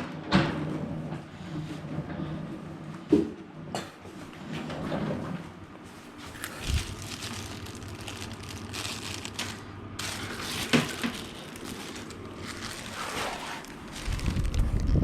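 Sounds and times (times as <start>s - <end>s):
packaging rustling and crinkling: 6.0s - 15.0s.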